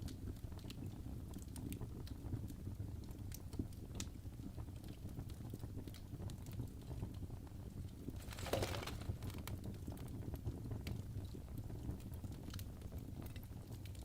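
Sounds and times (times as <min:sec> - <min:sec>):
fire crackling and popping: 0:07.9 - 0:10.2.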